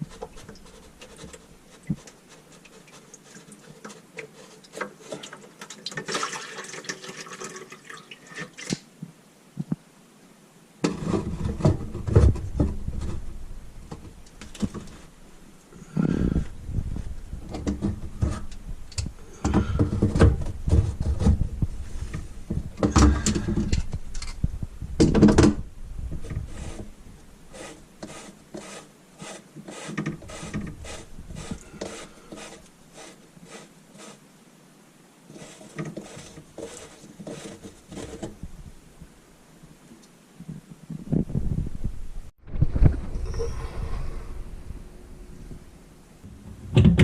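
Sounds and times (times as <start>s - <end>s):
tools knocking and scraping: 10.8s - 15.1s, 17.0s - 24.4s.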